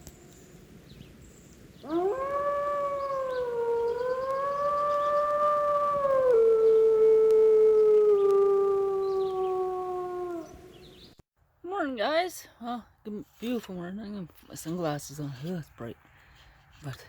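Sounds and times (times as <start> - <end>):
long howl: 1.8 - 10.9.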